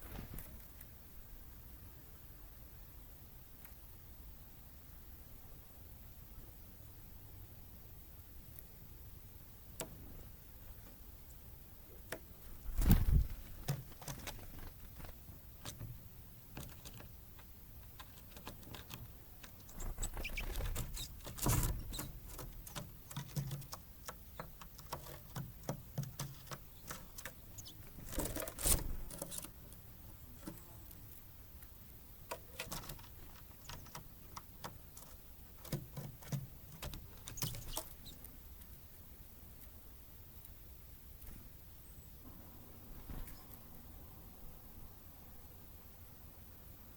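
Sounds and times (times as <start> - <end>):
birds pecking and perching: 8.4 - 44.6
bird wing flurries: 12.5 - 15.2, 19.7 - 22.1.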